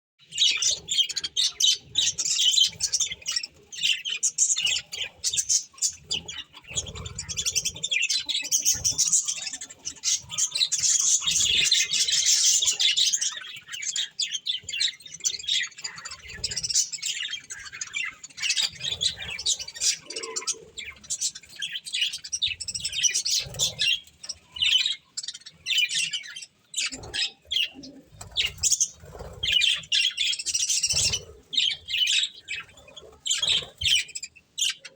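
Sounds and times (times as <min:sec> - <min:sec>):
budgerigars chirping: 0:00.2 - 0:34.9
budgerigar squawks: 0:18.5 - 0:20.9.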